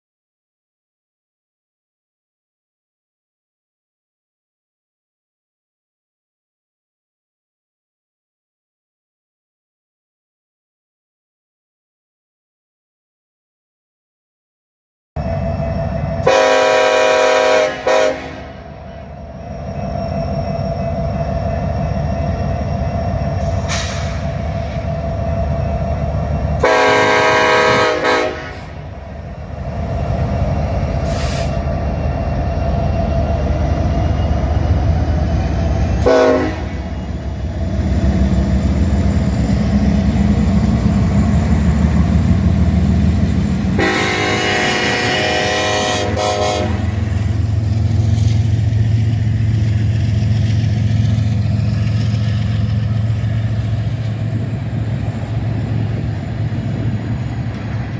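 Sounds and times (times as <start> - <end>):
locomotive engines and train rumble: 15.2 - 57.9
locomotive air horn blasts: 16.2 - 18.6, 26.6 - 28.8, 36.0 - 37.0, 43.7 - 47.0.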